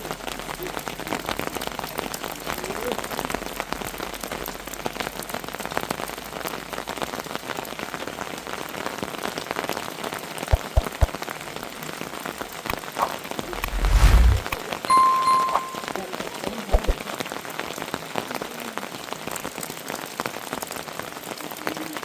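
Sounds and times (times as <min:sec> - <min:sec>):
heavy rain pattering: 0:00.0 - 0:10.4, 0:17.0 - 0:22.0.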